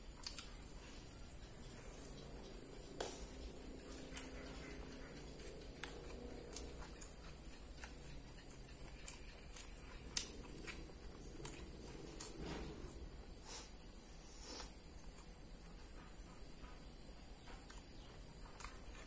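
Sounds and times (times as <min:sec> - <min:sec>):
steady hiss: 0:00.0 - 0:05.8, 0:10.2 - 0:17.4
person chewing crispy food: 0:00.1 - 0:12.8.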